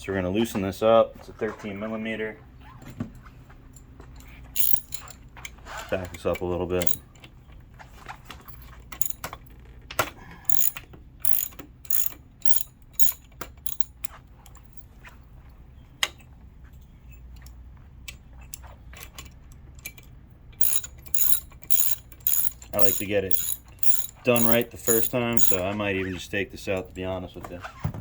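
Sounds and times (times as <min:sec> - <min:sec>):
ratchet wrench clicking: 0:04.6 - 0:05.1, 0:08.5 - 0:09.2, 0:10.5 - 0:14.8, 0:20.6 - 0:25.6.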